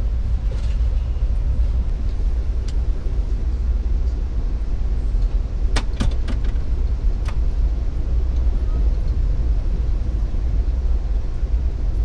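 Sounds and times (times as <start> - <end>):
train rumbling inside coach: 0.0 - 12.0.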